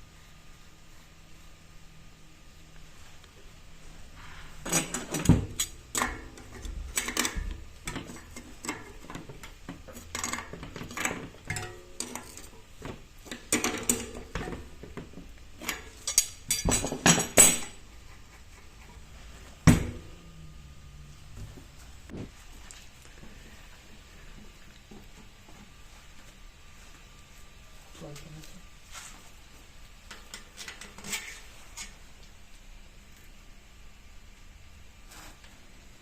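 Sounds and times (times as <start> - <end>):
metal parts and tools clinking: 15.6 - 17.8.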